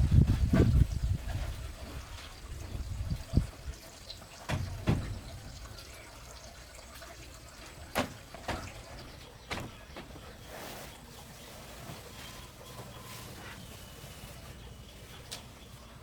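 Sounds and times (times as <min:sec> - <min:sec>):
sharp knocks: 0:04.5 - 0:05.6, 0:07.9 - 0:10.2.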